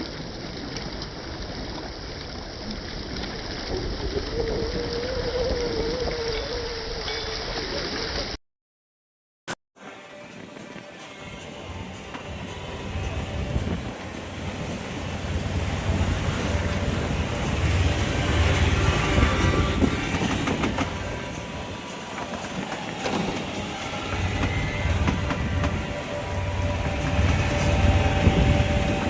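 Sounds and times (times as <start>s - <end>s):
wind buffeting microphone: 11.7s - 29.0s.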